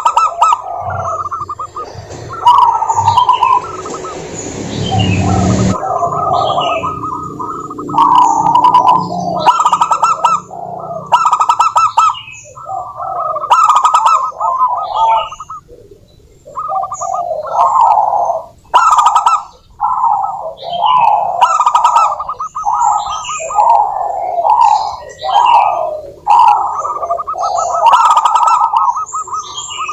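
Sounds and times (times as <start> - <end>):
doves cooing: 0.0 - 29.9.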